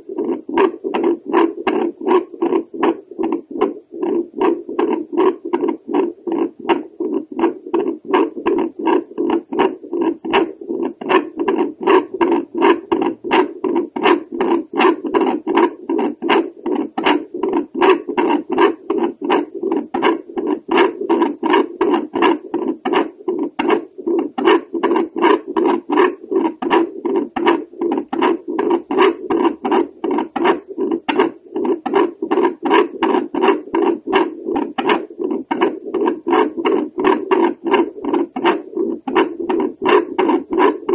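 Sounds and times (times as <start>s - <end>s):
steady hum: 0.0s - 40.9s
heartbeat pulsing whooshes: 22.4s - 40.9s.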